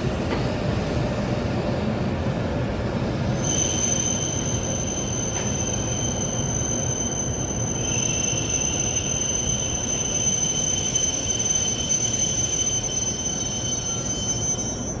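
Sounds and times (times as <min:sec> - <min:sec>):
train low rumble: 0:00.0 - 0:15.0
high-pitched whine: 0:03.4 - 0:15.0.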